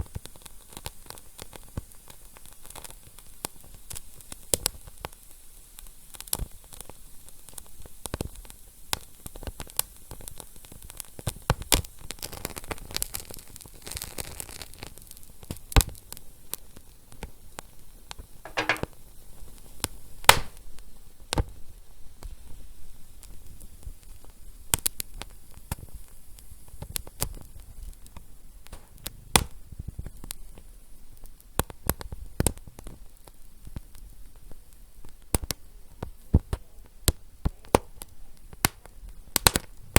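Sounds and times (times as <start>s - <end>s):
fire crackling and popping: 20.3s - 20.6s, 31.6s - 39.8s.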